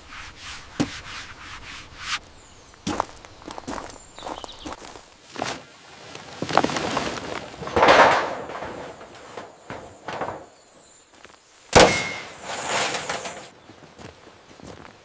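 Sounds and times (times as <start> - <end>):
loud metallic clang: 11.8 - 13.5.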